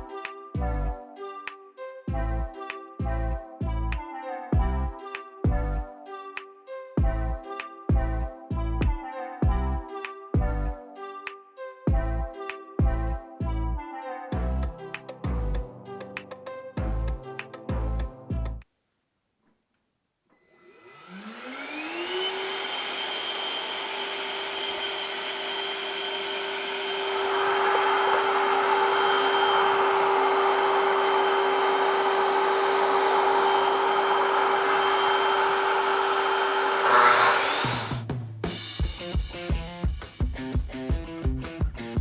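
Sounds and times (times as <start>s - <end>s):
power tool motor whine: 20.4s - 38.0s.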